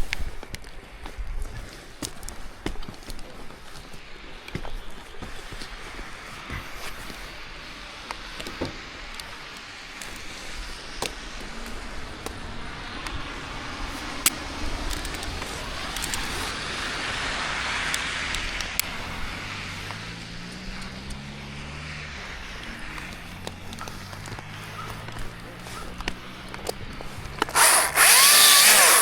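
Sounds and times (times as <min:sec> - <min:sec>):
low engine hum: 0:10.8 - 0:29.0
vehicle passing: 0:11.4 - 0:29.0.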